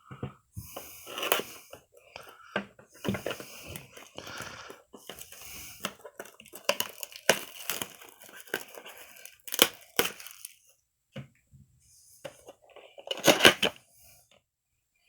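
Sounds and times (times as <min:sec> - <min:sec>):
packaging being torn open: 0:03.8 - 0:10.6.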